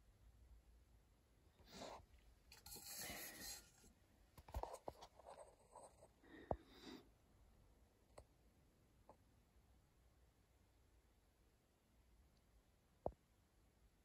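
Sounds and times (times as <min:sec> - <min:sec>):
soft rustling: 0:01.6 - 0:06.2.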